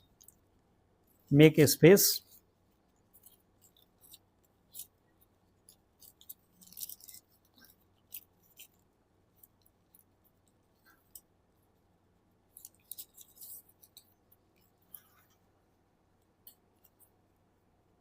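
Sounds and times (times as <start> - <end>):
paper being folded and creased: 12.6 - 14.2.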